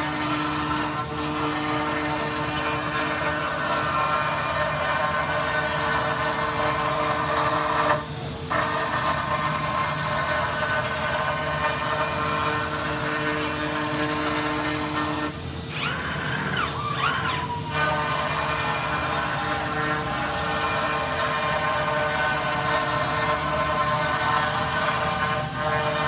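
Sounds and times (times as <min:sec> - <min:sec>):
machine cutting noise: 0:00.0 - 0:26.0
faint humming tones: 0:09.2 - 0:26.0.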